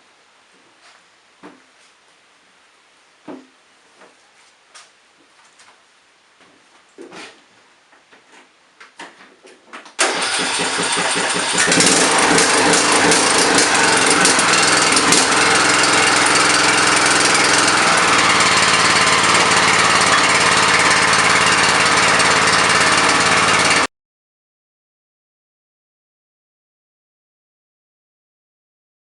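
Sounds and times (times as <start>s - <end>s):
lawn tractor engine running: 10.0s - 23.9s.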